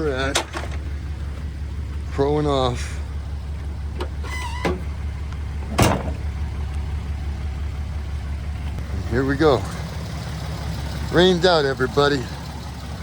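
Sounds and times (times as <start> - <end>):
pickup truck engine idling: 0.0 - 13.0
sharp thump: 5.6 - 6.2.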